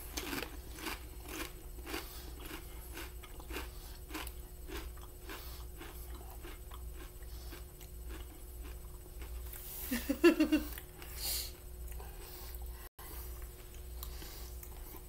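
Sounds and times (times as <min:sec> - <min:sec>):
potato chips being chewed: 0:00.0 - 0:09.7, 0:13.3 - 0:15.0
faint steady hum: 0:00.0 - 0:15.0.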